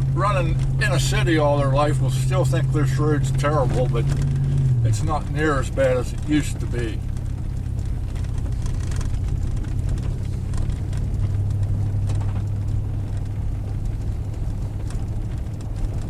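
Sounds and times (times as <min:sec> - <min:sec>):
faint light rattles: 0:00.0 - 0:16.0
truck engine and tyres droning: 0:00.0 - 0:16.0.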